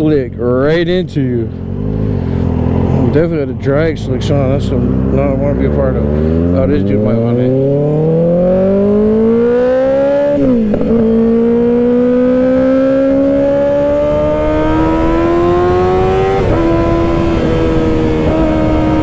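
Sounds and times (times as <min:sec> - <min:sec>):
motorcycle engine accelerating: 0:00.0 - 0:19.0
wind noise: 0:06.0 - 0:19.0.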